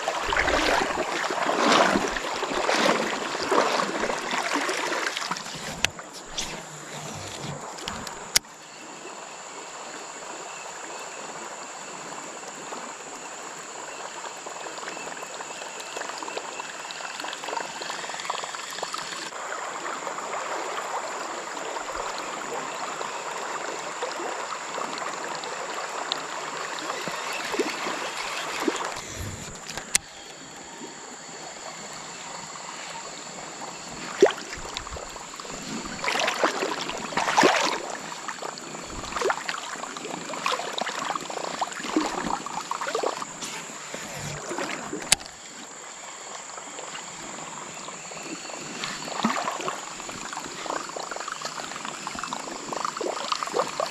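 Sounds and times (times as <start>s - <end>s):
creek water rushing over riffle: 0.0s - 8.4s, 18.9s - 53.9s
water splashes: 0.0s - 8.4s, 18.6s - 53.9s.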